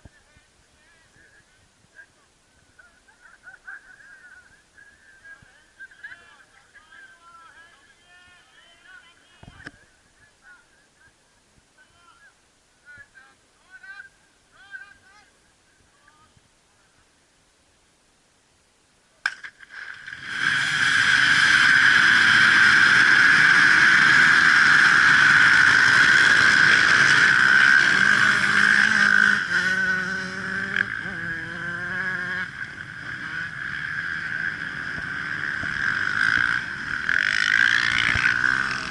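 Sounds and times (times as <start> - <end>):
dirt bike engines revving: 19.3 - 38.9.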